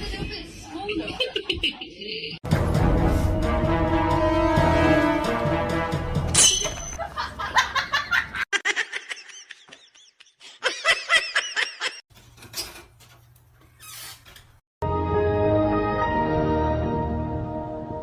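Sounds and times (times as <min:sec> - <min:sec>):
music: 0:02.4 - 0:06.4, 0:14.8 - 0:18.0.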